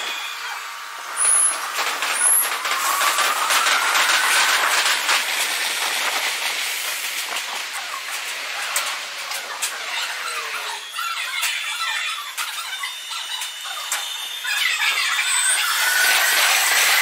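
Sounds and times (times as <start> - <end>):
wheel squeal: 0.0 - 5.1, 9.4 - 17.0
steady rail noise: 0.0 - 17.0.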